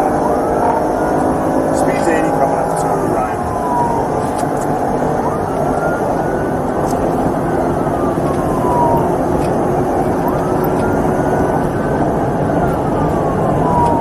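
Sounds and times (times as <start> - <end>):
police siren wailing: 0.0 - 14.0
road and engine noise: 0.0 - 14.0.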